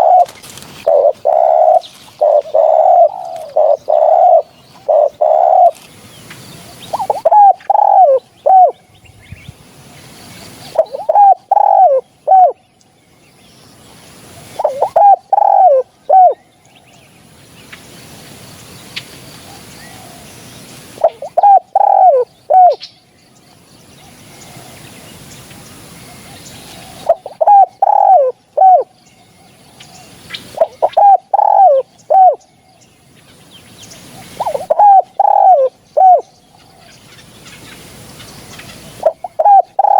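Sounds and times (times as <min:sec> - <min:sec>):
dove cooing: 0:00.0 - 0:05.9, 0:06.7 - 0:08.8, 0:10.7 - 0:12.6, 0:14.3 - 0:16.4, 0:19.4 - 0:22.8, 0:26.1 - 0:29.0, 0:29.7 - 0:32.5, 0:34.0 - 0:36.9, 0:38.5 - 0:39.9.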